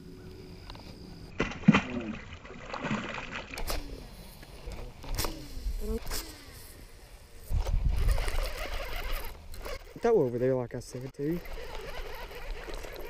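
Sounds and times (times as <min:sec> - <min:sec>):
fish splashing into water: 0:01.3 - 0:04.0
short sharp splashes: 0:01.4 - 0:03.9.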